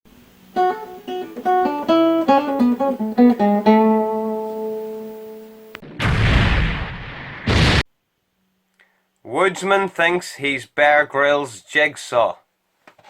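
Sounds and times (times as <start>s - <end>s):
plucked guitar phrase: 0.6s - 5.8s
loud noisy blast: 5.8s - 7.9s.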